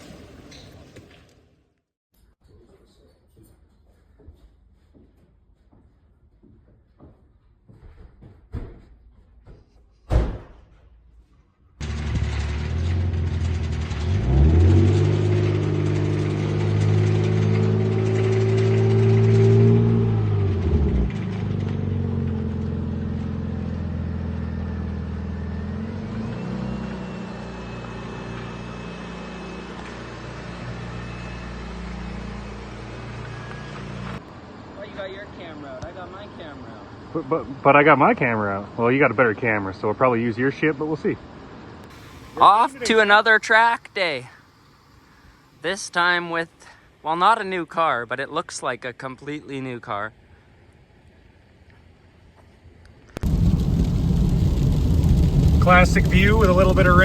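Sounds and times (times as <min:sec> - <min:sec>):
door slamming shut: 0:10.1 - 0:10.8
car engine running: 0:53.2 - 0:57.0
faint high whine: 0:53.2 - 0:57.0.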